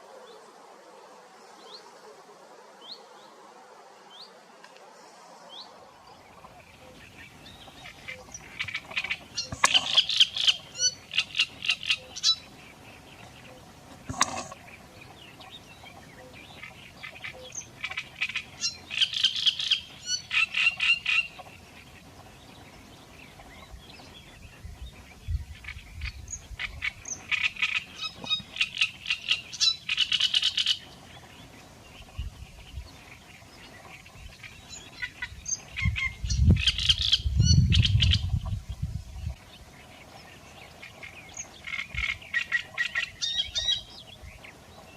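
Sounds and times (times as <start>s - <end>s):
bird rapid high chattering: 7.7s - 12.5s.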